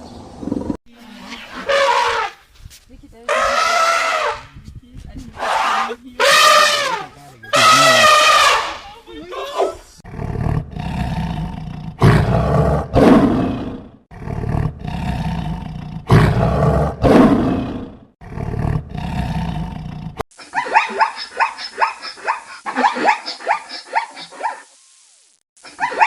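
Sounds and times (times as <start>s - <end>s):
high yipping calls: 5.4s - 10.0s
big cat roaring and growling: 9.5s - 20.2s.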